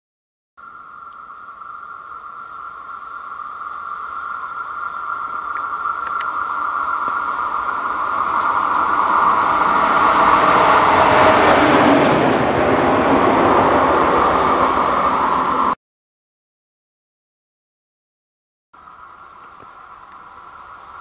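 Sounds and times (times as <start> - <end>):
electric locomotive passing: 0.7 - 15.8, 18.8 - 21.0.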